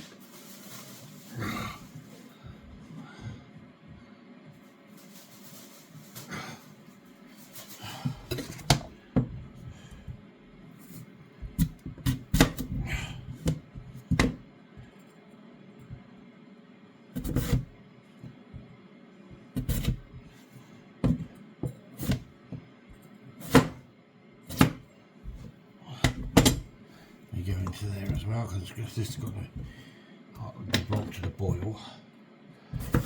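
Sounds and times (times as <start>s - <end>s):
knife chopping on cutting board: 11.5s - 14.4s, 19.6s - 20.1s, 23.4s - 23.8s, 24.5s - 26.6s, 32.8s - 33.0s.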